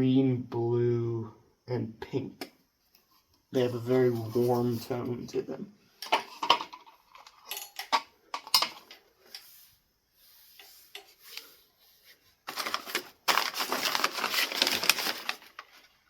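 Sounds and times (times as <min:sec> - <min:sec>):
scraping rustle: 0:03.8 - 0:05.1
small metal parts clinking: 0:06.0 - 0:09.0.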